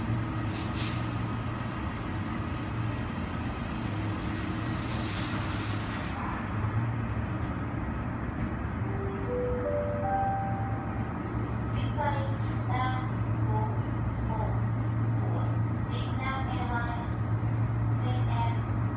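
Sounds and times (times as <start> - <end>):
jet airliners droning: 8.8 - 12.0.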